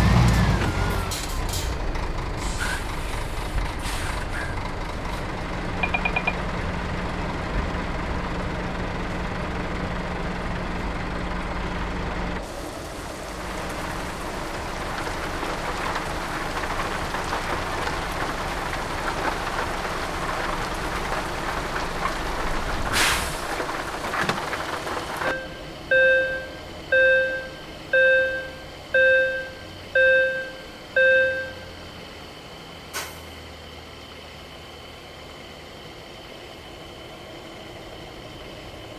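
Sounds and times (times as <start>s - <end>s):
truck engine running: 0.0s - 38.9s
air brake hiss: 2.4s - 4.6s, 22.9s - 23.4s, 32.9s - 33.3s
reversing alarm beeping: 5.8s - 6.4s, 25.2s - 31.9s.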